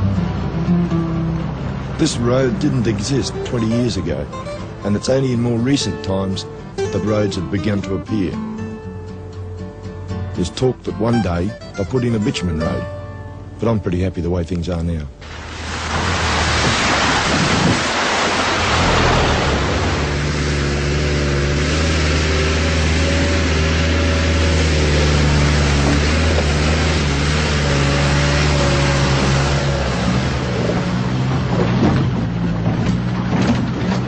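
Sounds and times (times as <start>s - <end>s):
engine drone: 0.0s - 7.5s, 15.2s - 34.0s
tyre and road noise: 0.0s - 10.2s, 15.2s - 34.0s.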